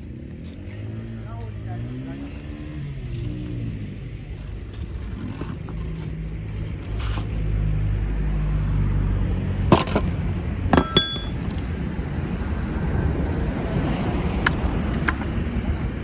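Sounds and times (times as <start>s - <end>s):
ringing metallic clinks: 10.7s - 11.6s.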